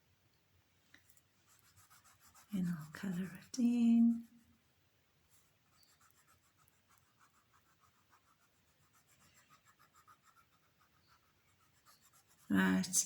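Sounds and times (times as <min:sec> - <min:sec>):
pencil scratching on paper: 0:01.5 - 0:04.4, 0:05.4 - 0:13.0.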